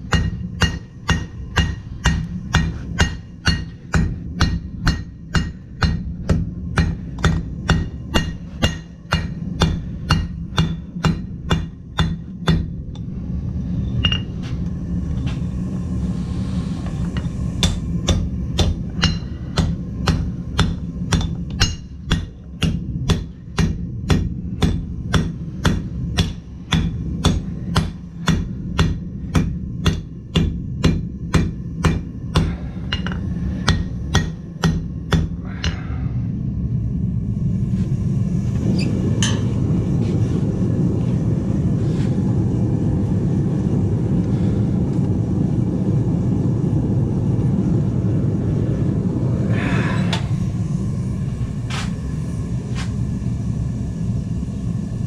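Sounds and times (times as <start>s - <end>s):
hammer striking metal on anvil: 0.0s - 13.1s, 14.0s - 14.4s, 17.2s - 35.9s, 39.2s - 39.5s
low rushing noise: 0.0s - 55.0s.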